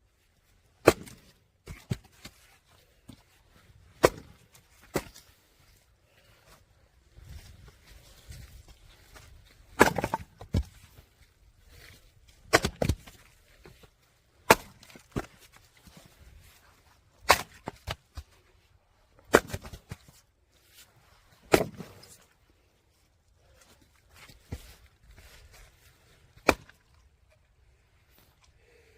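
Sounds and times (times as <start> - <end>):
axe chopping firewood: 0.8 - 2.4, 4.0 - 5.3, 9.7 - 10.9, 11.7 - 16.2, 17.2 - 18.3, 19.2 - 20.2, 21.4 - 22.2, 26.4 - 27.0.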